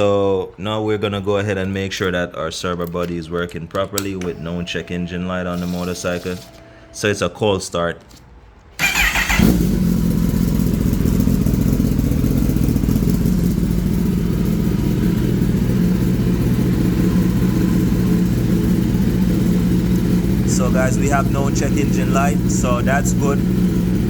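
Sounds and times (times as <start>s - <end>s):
starter motor cranking: 4.2s - 6.8s, 8.8s - 9.9s
motorcycle engine idling: 8.8s - 24.0s.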